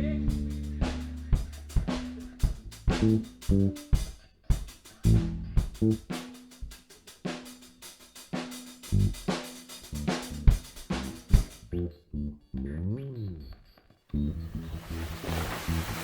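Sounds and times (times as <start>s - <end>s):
drum-led background music: 0.0s - 11.7s.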